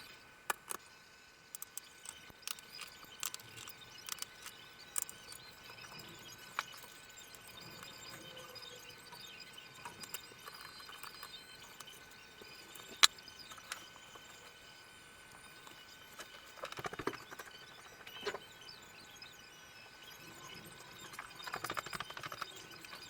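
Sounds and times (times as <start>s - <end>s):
computer parts clicking: 0.5s - 0.9s, 1.5s - 14.4s, 15.6s - 18.4s, 20.9s - 23.0s.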